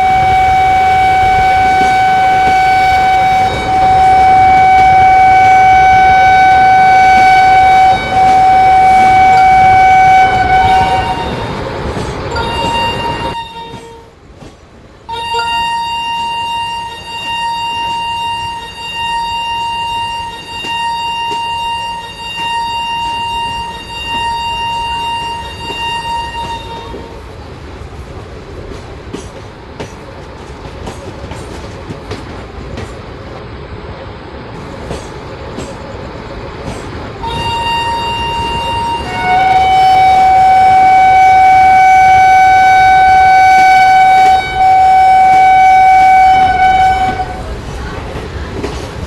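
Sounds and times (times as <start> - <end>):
train horn blast: 0.0 - 14.2, 15.1 - 27.2, 37.2 - 47.5
passing train rumbling: 0.0 - 49.0
wheels clicking over rail joints: 23.4 - 33.5, 42.9 - 49.0.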